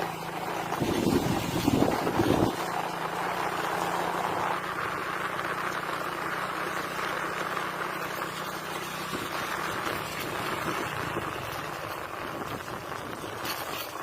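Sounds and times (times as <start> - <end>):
wind buffeting microphone: 0.6 - 3.0, 9.1 - 14.0.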